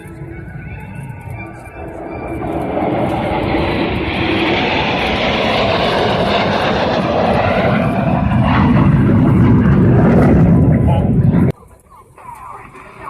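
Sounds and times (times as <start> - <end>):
jet engine roar overhead: 0.0 - 13.0.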